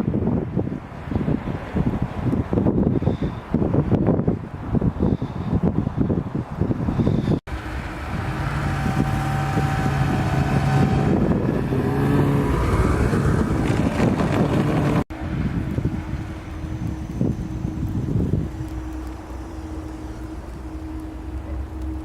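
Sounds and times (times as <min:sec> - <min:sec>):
wind noise on microphone: 0:00.0 - 0:22.0
vehicle engine passing by: 0:07.5 - 0:22.0.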